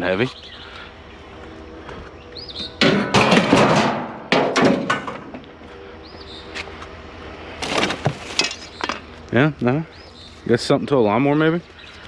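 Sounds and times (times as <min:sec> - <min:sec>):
bird chirping: 0:00.0 - 0:00.9, 0:02.1 - 0:02.8, 0:06.0 - 0:06.6, 0:09.7 - 0:12.0
scrap metal clattering: 0:02.8 - 0:05.4.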